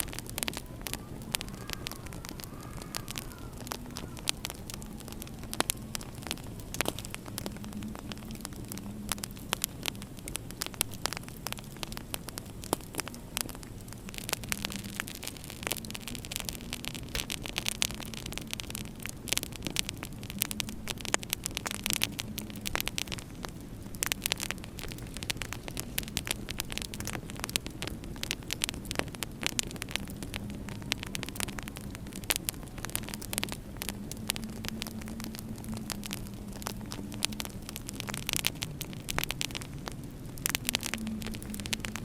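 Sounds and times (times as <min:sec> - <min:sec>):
low steady hum: 0:00.0 - 0:42.0
wood fire crackling: 0:00.0 - 0:42.0.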